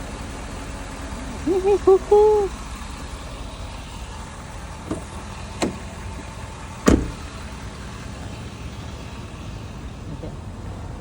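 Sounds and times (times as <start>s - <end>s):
heavy thump: 6.8s - 7.2s.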